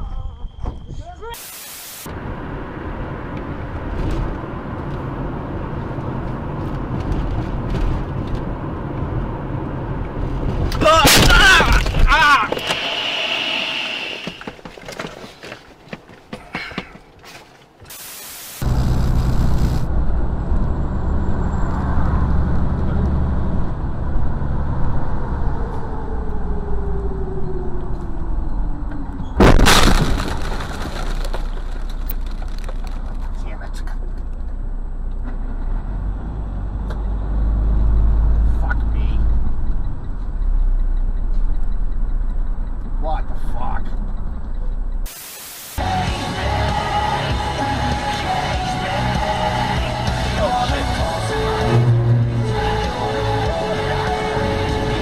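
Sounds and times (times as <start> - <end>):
car engine and road noise: 0.4 - 55.0
crash impact: 10.8 - 14.3, 29.4 - 33.1.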